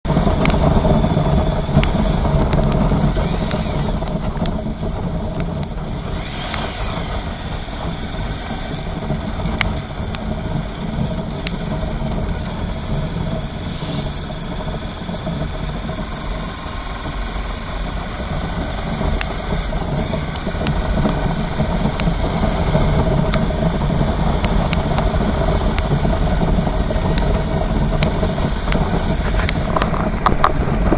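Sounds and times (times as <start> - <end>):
raindrops ticking close by: 0.1 - 30.9
rain falling steadily: 7.2 - 30.9.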